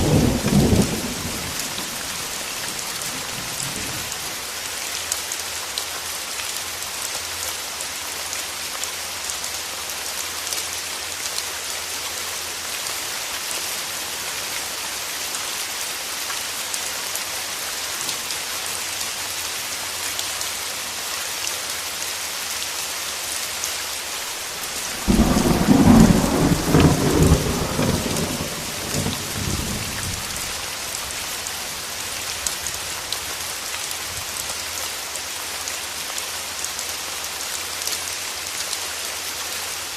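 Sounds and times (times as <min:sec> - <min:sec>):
thunder clap rumbling: 0:00.0 - 0:02.7, 0:24.6 - 0:30.6
steady rain falling: 0:00.0 - 0:39.9.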